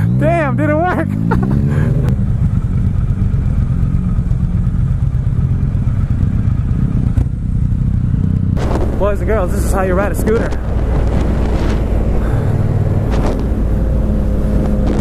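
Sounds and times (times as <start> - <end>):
motorcycle engine: 0.0 - 15.0
wind noise on microphone: 8.6 - 15.0.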